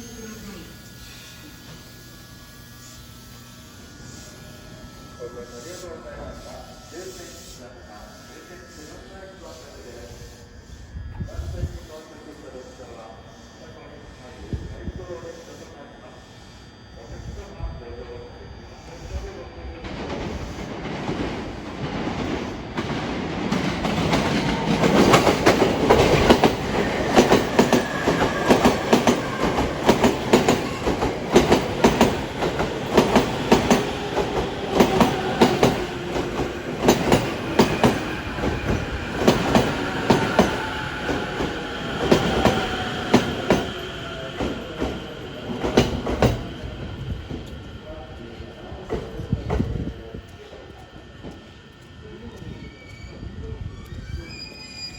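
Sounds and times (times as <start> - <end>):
train wheels clacking on rail joints: 19.8 - 47.6.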